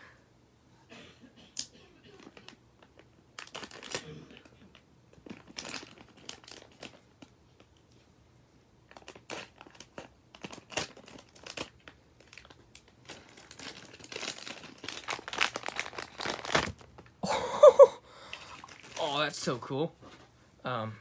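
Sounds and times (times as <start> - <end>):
packaging crinkling and rustling: 2.2 - 8.0, 8.8 - 17.2, 18.4 - 19.3.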